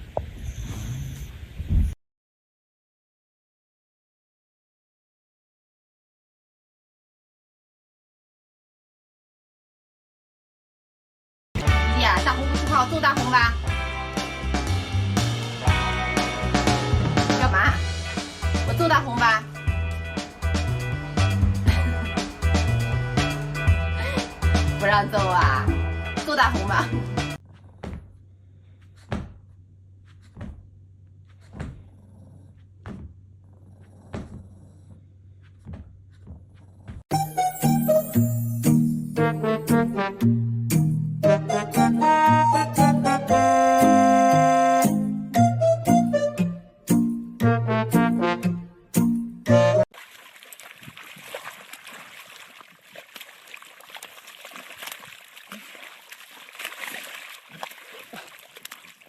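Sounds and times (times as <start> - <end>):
water splashing and trickling: 49.9 - 59.0.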